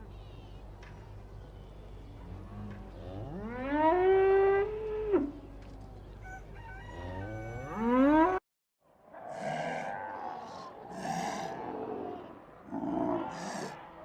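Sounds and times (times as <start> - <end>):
cow mooing: 2.3 - 5.4, 6.7 - 8.4.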